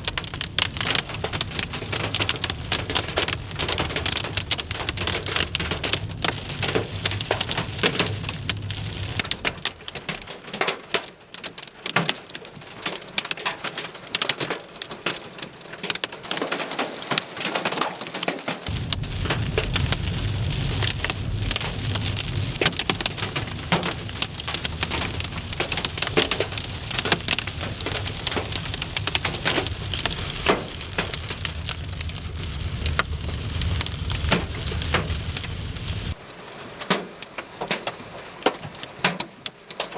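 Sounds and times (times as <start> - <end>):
low steady rumble: 0.0 - 10.2, 18.7 - 36.2
hail and heavy rain: 0.0 - 39.9.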